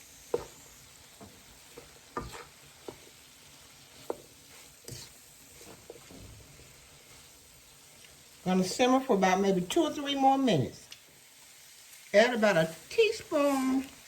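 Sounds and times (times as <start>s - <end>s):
vegetables sizzling: 0.0s - 14.0s
spoon scraping a pot: 1.8s - 3.1s, 4.0s - 6.1s.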